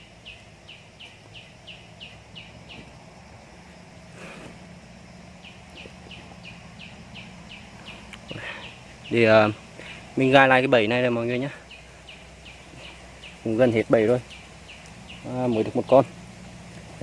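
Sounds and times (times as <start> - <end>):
bird calling in falling chirps: 0.0 - 17.0.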